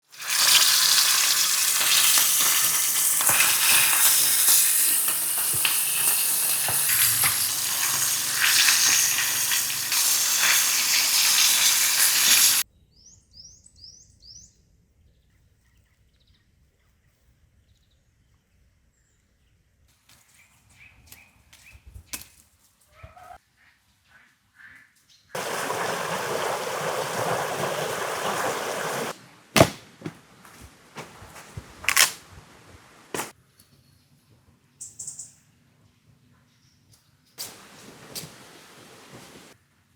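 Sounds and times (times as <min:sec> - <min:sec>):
steak sizzling over a fire: 0:00.0 - 0:12.6, 0:25.4 - 0:29.2, 0:37.4 - 0:39.6
bird chirps: 0:34.8 - 0:35.4.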